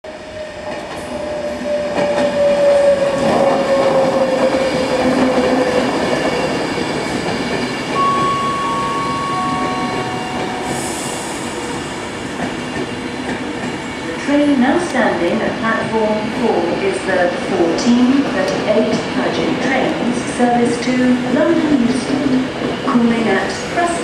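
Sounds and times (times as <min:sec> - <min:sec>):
electric train rumbling: 0:00.1 - 0:24.0
train whine falling in pitch: 0:07.9 - 0:12.9.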